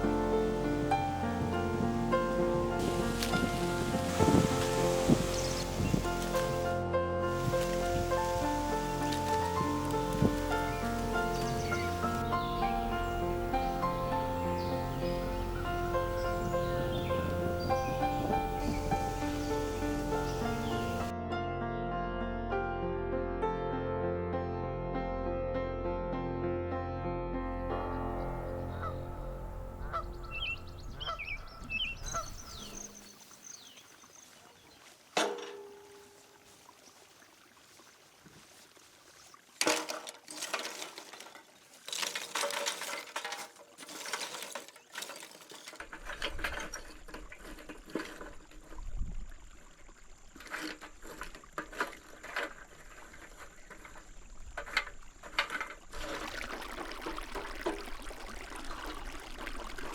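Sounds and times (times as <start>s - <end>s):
stream water flowing: 0.0s - 21.1s, 30.1s - 59.9s
water pouring and splashing: 0.0s - 21.1s, 31.0s - 59.9s
clattering of food preparation: 7.3s - 21.0s, 35.2s - 36.0s, 39.6s - 48.9s, 50.3s - 58.0s.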